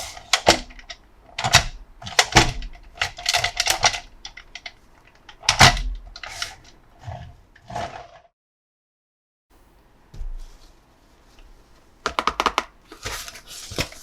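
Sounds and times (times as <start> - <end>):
plastic toys being handled: 12.1 - 14.0
packaging rustling: 12.8 - 14.0.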